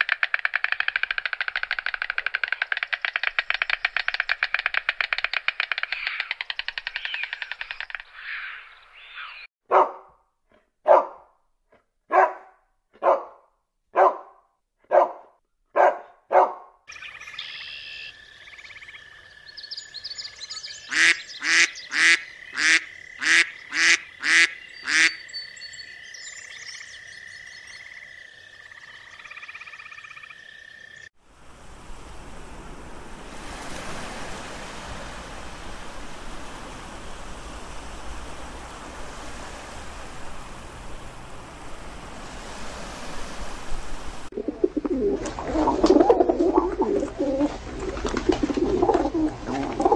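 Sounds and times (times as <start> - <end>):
stork clattering its bill: 0.0 - 8.2
loud bird calls: 0.0 - 9.5, 16.9 - 28.0
duck quacking: 20.9 - 25.2.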